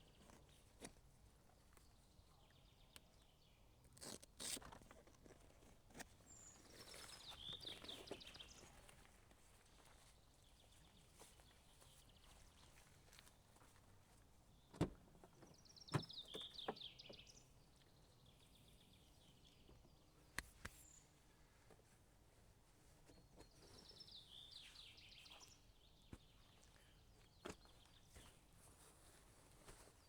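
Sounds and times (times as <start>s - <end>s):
quiet forest background: 0.0s - 30.0s
songbird singing: 6.2s - 8.9s, 14.5s - 21.2s, 23.0s - 28.8s.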